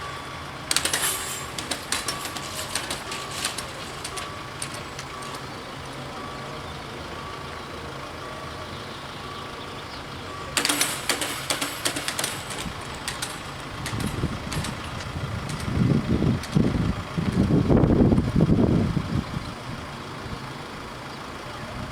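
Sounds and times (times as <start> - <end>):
level-crossing warning bell: 0.0 - 17.6
diesel railcar rumble: 0.0 - 21.9
loud rattling and crackling: 0.6 - 6.0, 10.3 - 17.6.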